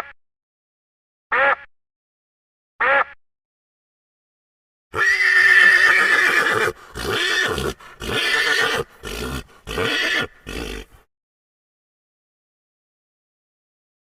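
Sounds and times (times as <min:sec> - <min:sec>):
horse whinnying: 0:04.9 - 0:11.0.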